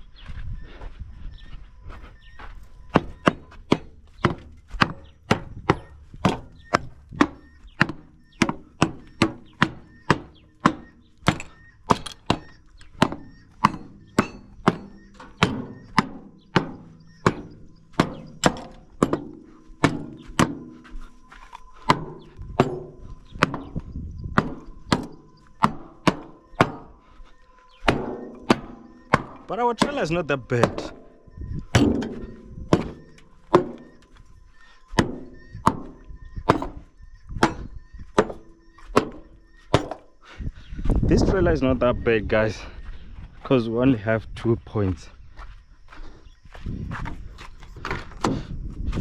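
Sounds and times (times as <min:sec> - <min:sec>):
hammer striking metal doors: 0:02.9 - 0:21.1, 0:21.8 - 0:27.0, 0:27.8 - 0:34.2, 0:34.9 - 0:40.2.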